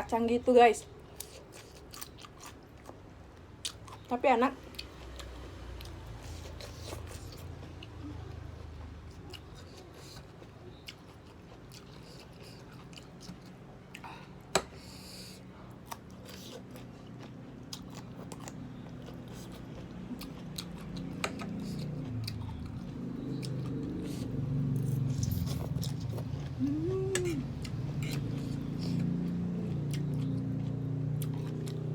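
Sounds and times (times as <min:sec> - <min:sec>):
person chewing noodles: 0:00.9 - 0:31.9
low hum: 0:21.0 - 0:31.9.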